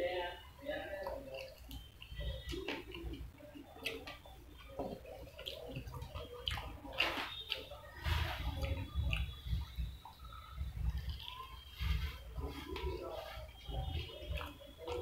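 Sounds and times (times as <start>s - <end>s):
wet mouth clicks: 1.0s - 11.6s
man chewing: 1.0s - 15.0s.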